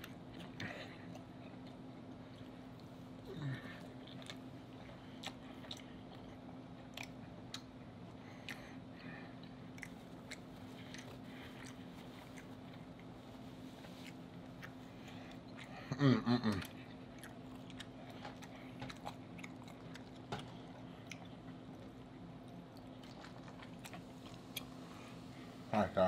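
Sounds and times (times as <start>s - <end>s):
steady low hum: 0.0s - 26.0s
chewing with wet mouth clicks: 3.8s - 13.2s, 13.8s - 24.8s.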